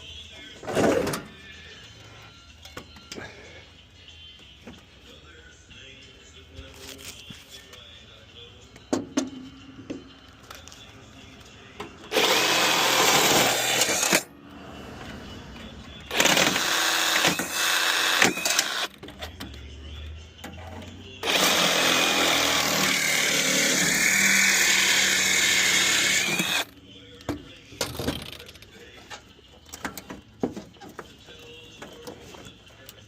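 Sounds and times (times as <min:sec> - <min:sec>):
handheld power tool running: 0:12.1 - 0:14.2, 0:16.1 - 0:18.9, 0:21.2 - 0:26.7.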